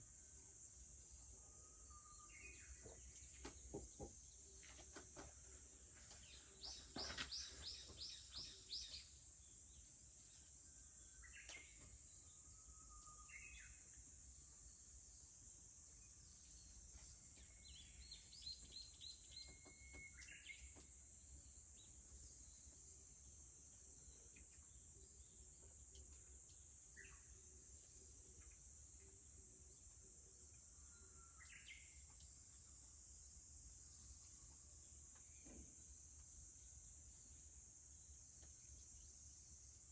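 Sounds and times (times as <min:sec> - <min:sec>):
cicadas droning: 0:00.0 - 0:39.9
songbirds calling: 0:01.8 - 0:14.1, 0:14.7 - 0:22.8, 0:30.5 - 0:32.8.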